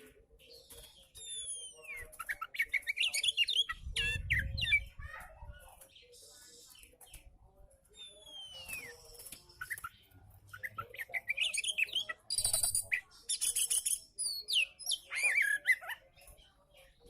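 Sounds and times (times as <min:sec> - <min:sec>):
bird singing: 0:07.9 - 0:17.0.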